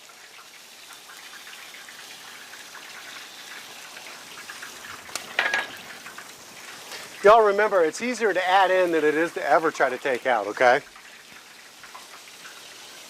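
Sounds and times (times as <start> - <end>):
gravy crackling in a skillet: 0.0 - 13.0.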